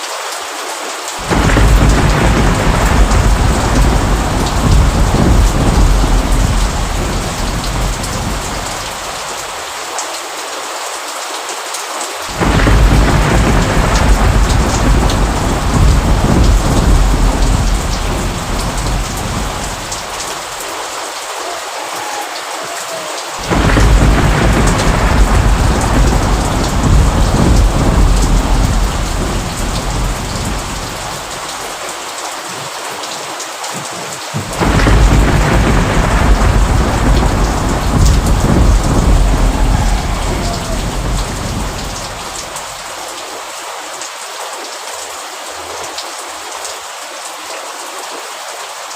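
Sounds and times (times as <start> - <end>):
steady rain hissing: 0.0 - 48.9
low rumbling thunder: 1.2 - 9.1, 12.3 - 20.5, 23.4 - 31.6, 34.4 - 42.8.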